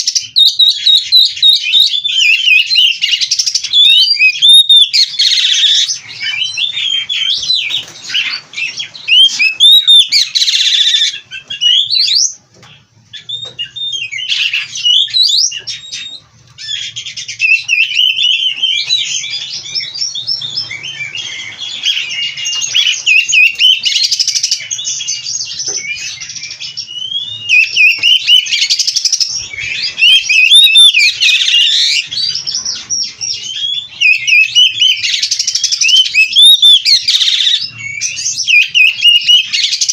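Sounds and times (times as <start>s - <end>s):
bird singing whistles and trills: 0.0s - 39.9s.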